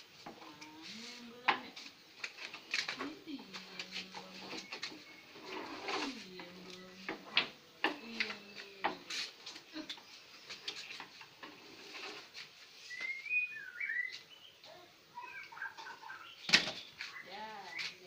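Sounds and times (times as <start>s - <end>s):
bird chirping: 12.8s - 18.0s.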